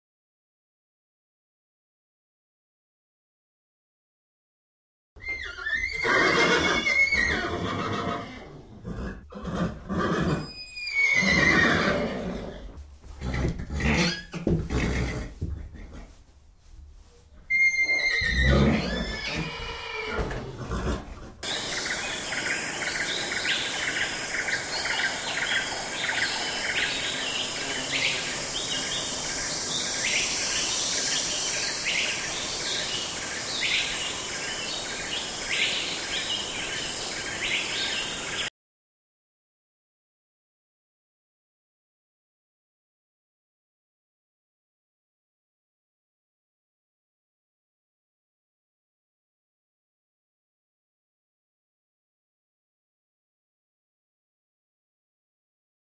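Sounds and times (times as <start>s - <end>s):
horse whinnying: 5.2s - 16.0s, 17.4s - 21.3s
horse breathing: 12.2s - 18.6s, 20.2s - 21.7s.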